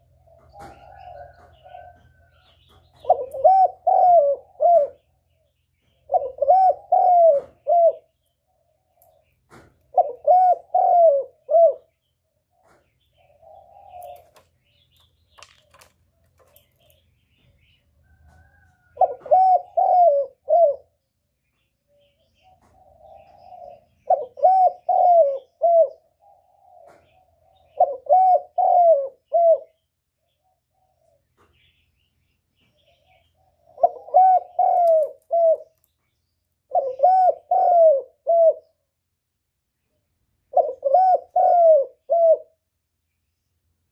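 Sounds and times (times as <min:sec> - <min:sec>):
dove cooing: 0:00.0 - 0:17.0, 0:18.0 - 0:21.0, 0:21.9 - 0:31.4, 0:32.8 - 0:35.8, 0:36.7 - 0:38.9, 0:40.5 - 0:42.7.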